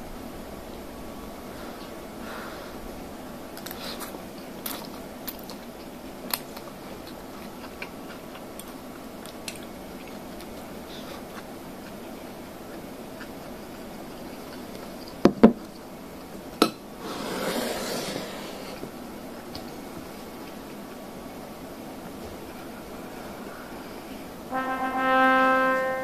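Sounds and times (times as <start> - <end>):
low background noise: 0.0 - 26.0
quiet chewing: 3.5 - 16.6, 18.8 - 24.4.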